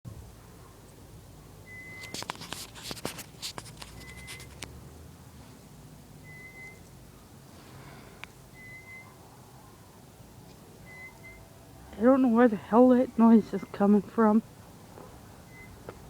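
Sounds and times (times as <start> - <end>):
crackling handling noise: 2.0 - 4.8.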